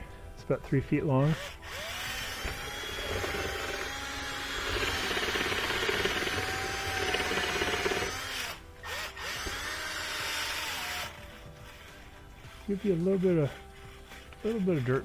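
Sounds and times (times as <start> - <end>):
brush scraping inside vent tube: 10.9 - 15.0.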